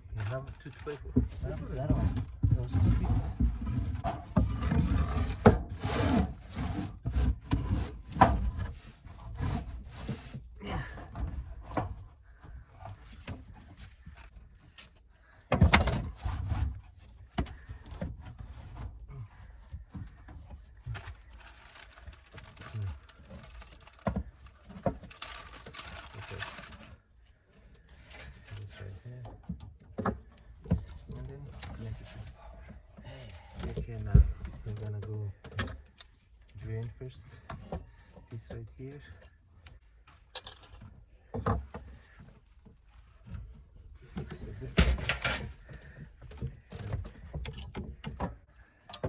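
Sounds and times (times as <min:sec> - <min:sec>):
wood rubbing scrape: 0:00.0 - 0:14.4, 0:15.2 - 0:29.2
wooden knocks and thuds: 0:01.0 - 0:06.2, 0:15.2 - 0:21.1, 0:33.6 - 0:35.9.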